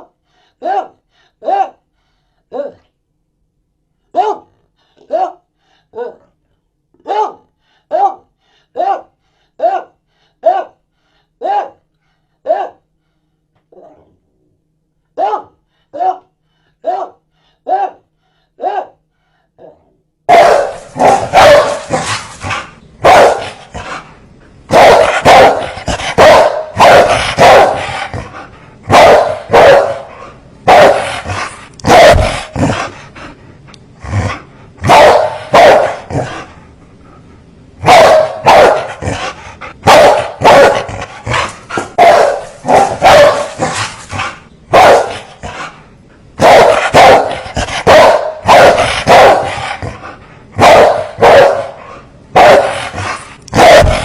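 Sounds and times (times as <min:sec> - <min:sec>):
dogs barking fiercely: 0:20.3 - 0:24.1, 0:24.7 - 0:33.2, 0:34.1 - 0:36.5, 0:37.8 - 0:45.8, 0:46.4 - 0:54.0.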